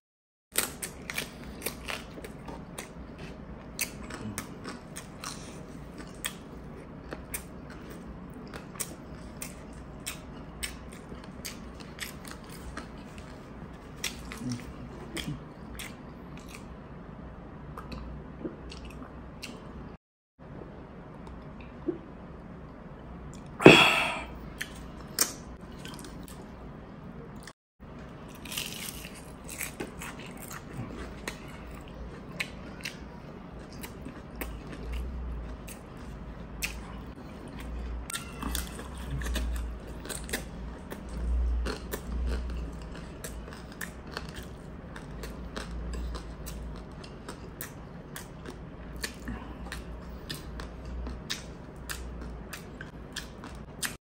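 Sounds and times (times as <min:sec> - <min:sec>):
chewing and biting: 0:00.6 - 0:16.7, 0:28.3 - 0:54.0.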